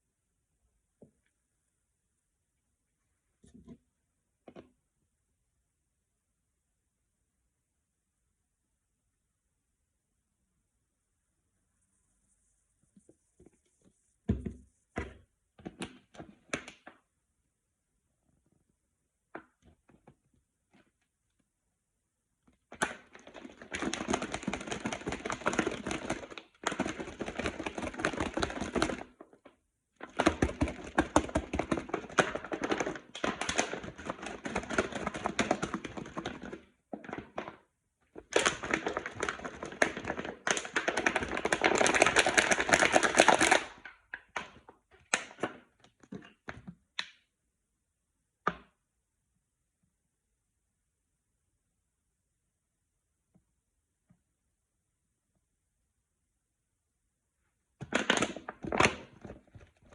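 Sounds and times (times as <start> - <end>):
plastic bottle being shaken: 22.9 - 29.2, 30.0 - 46.5.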